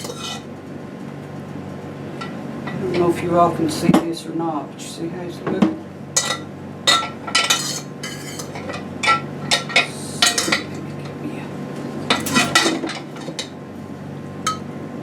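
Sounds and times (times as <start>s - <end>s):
metal utensil clinking on baking dish: 6.2s - 11.2s, 12.1s - 13.5s, 14.5s - 14.7s.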